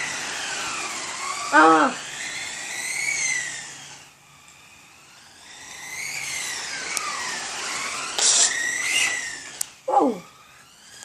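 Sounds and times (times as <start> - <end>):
rc car motors whining: 0.0 - 11.0
short burst of hiss: 8.2 - 9.1.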